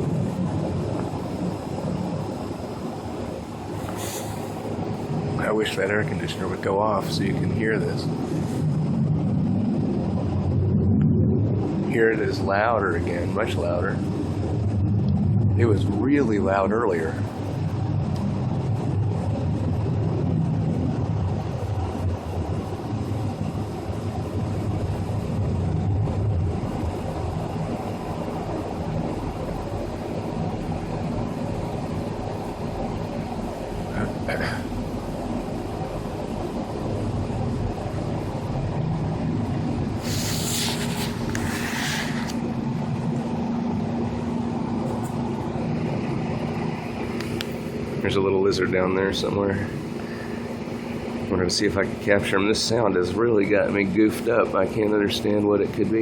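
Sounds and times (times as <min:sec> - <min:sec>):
air conditioner running: 0:00.0 - 0:56.0
low roar from the sky: 0:00.0 - 0:56.0
steady hum: 0:00.0 - 0:56.0
hiss: 0:03.7 - 0:04.7, 0:40.0 - 0:42.4.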